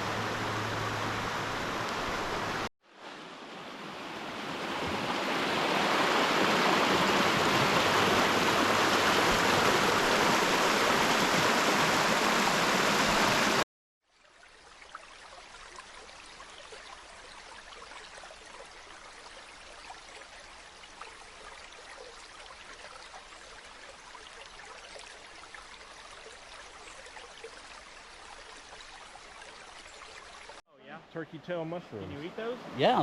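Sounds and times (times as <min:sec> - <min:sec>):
river rushing over rapids: 0:00.0 - 0:13.6
rippling water with small splashes: 0:00.0 - 0:30.6.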